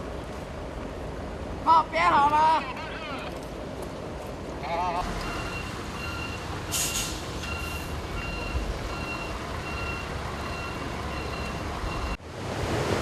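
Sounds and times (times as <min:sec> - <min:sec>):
engine rumble: 0:02.4 - 0:13.0
reversing alarm beeping: 0:05.2 - 0:12.2
short hisses: 0:06.7 - 0:07.9
floodwater rushing: 0:11.6 - 0:13.0.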